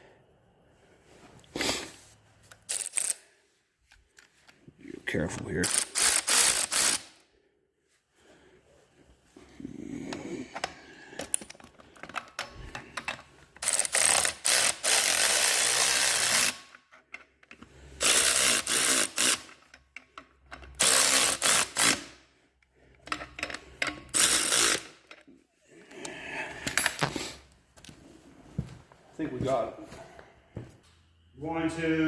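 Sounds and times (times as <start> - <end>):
clicks and knocks of tool work: 10.1 - 22.0, 22.6 - 25.4.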